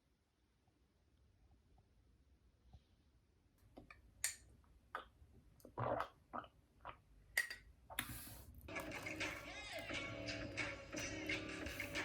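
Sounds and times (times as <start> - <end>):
background music: 8.7 - 12.0.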